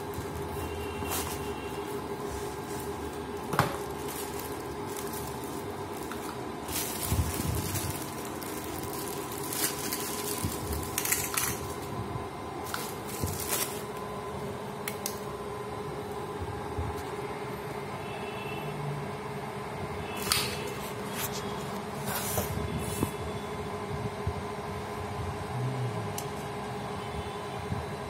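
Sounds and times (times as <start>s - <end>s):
steady low hum: 0.0s - 18.1s
clicks and handling rustles: 0.1s - 11.9s, 12.6s - 14.0s.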